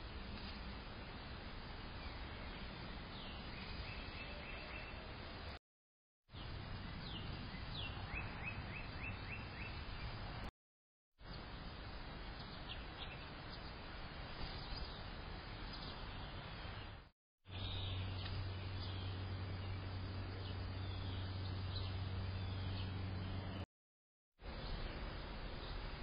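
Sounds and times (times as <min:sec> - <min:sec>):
steady outdoor hiss: 0:00.0 - 0:05.6, 0:06.3 - 0:10.5, 0:11.2 - 0:23.7, 0:24.4 - 0:26.0
bird chirps: 0:06.4 - 0:10.2, 0:15.7 - 0:23.6.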